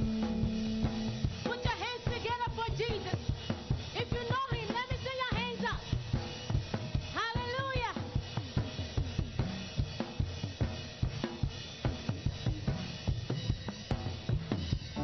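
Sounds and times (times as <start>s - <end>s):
pitch-bending melodic line: 0.0s - 1.5s
drum kit beat: 0.0s - 15.0s
live worship band music: 0.0s - 15.0s.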